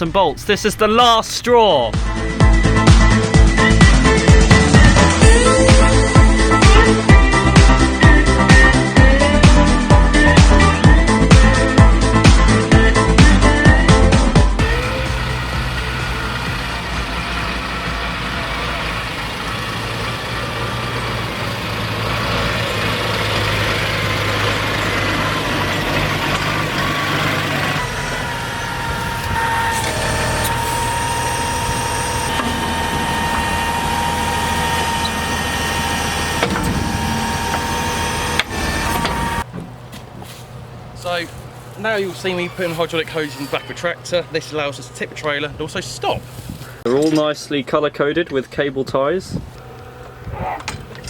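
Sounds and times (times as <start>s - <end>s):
diesel engine running: 1.9s - 51.0s.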